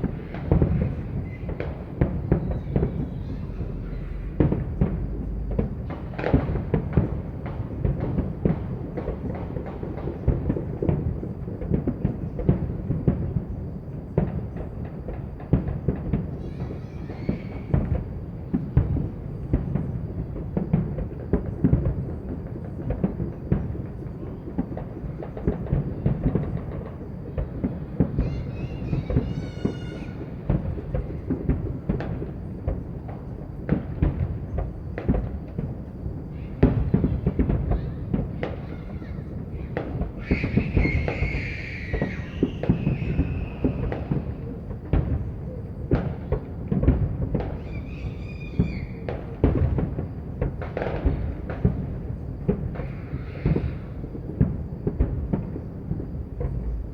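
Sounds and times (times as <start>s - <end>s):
fireworks bangs and cracks: 0.0s - 56.9s
low rumble: 3.0s - 6.0s.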